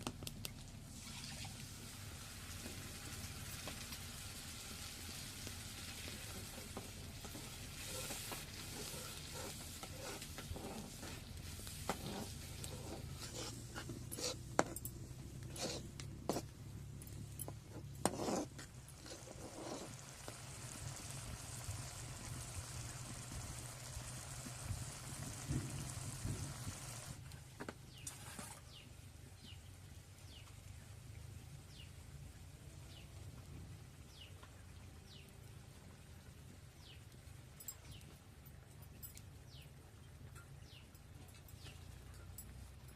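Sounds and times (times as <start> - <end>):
food sizzling in hot oil: 0.9 - 13.6, 18.9 - 27.2
utensil scraping a pan: 6.4 - 14.8, 15.4 - 16.5, 17.7 - 20.0, 28.0 - 28.8.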